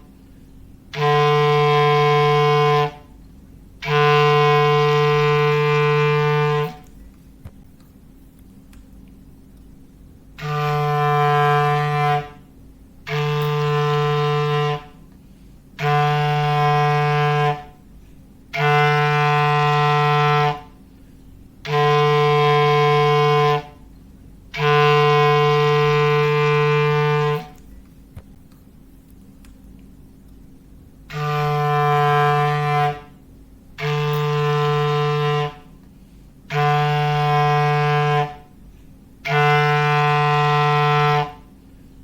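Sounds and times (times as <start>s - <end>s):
foghorn blasts: 0.8s - 3.2s, 3.8s - 7.0s, 10.3s - 20.9s, 21.5s - 27.6s, 31.0s - 41.6s.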